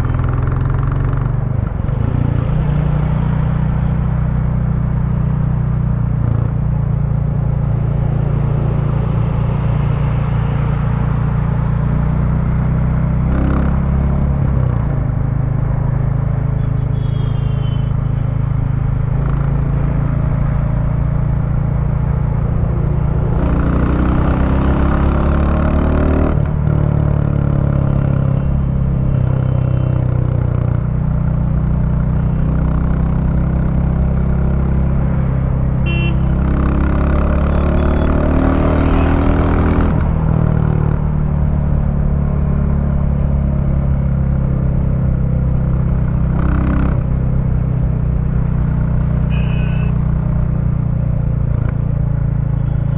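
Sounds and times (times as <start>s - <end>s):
motorcycle engine running: 45.2s - 52.9s.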